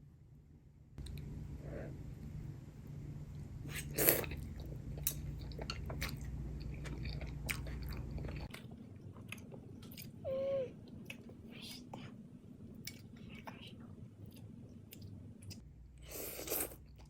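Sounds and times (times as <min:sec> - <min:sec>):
low steady hum: 0:00.0 - 0:17.0
chewing and crunching: 0:03.8 - 0:10.2.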